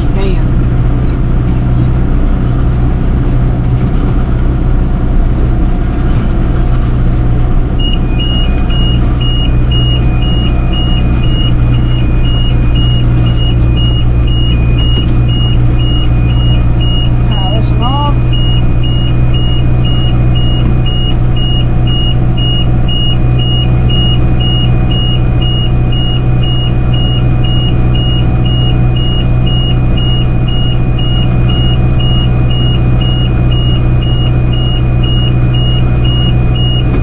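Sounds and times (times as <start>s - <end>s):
tractor and baler running: 0.0s - 37.0s
two-tone warning alarm beeping: 7.8s - 37.0s.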